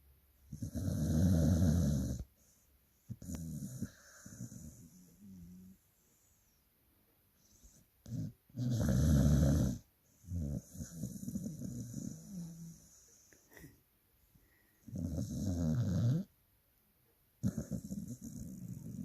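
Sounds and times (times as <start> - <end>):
dog snoring loudly: 0.5 - 2.3, 3.1 - 5.8, 8.0 - 13.0, 14.8 - 16.3, 17.4 - 19.0
dog breathing quietly: 2.1 - 6.7.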